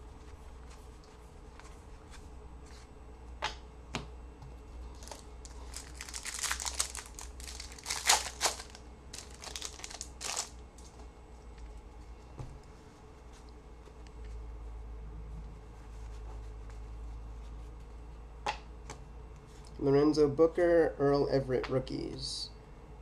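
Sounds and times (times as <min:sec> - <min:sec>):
wrapper crackling and crinkling: 0:04.9 - 0:10.9.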